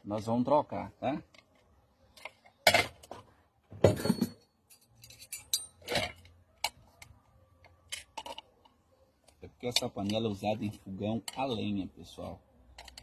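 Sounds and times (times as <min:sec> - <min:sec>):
metal parts clinking and knocking: 0:03.8 - 0:08.8, 0:09.6 - 0:13.0.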